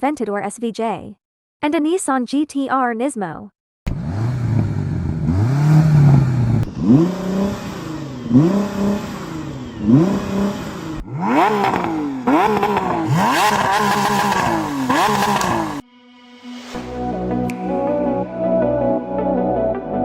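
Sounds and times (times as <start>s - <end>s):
car engine accelerating hard: 3.9s - 15.8s
higher-pitched car engine revving: 3.9s - 15.8s.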